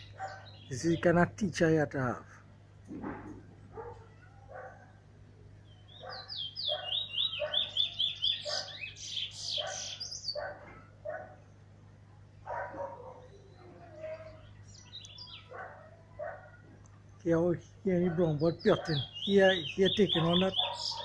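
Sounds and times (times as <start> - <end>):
repeated low bird call notes: 0.0 - 1.2, 5.0 - 10.4, 17.7 - 21.0
songbird singing high chirps: 0.0 - 1.2, 5.6 - 10.6, 12.9 - 15.8, 17.9 - 21.0.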